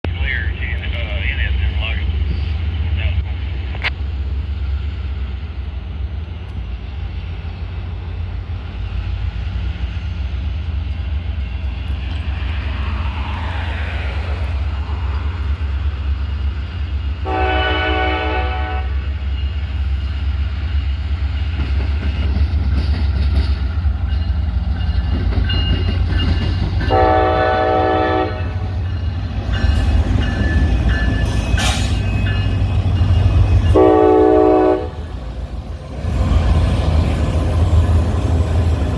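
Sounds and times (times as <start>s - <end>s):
diesel locomotive engine rumble: 0.0s - 38.9s
locomotive horn blasts: 17.2s - 19.1s, 26.9s - 28.7s, 33.7s - 35.1s.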